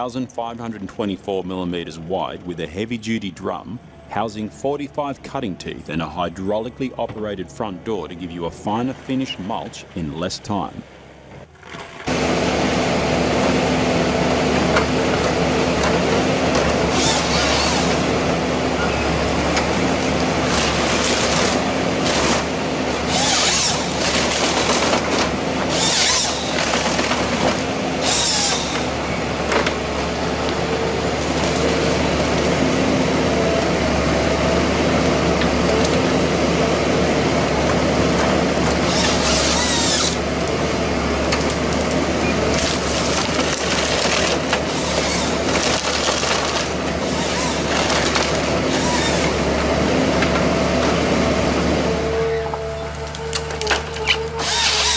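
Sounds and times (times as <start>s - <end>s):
heavy machine engine running: 0.0s - 54.9s
wood splintering and shredding: 11.5s - 54.9s.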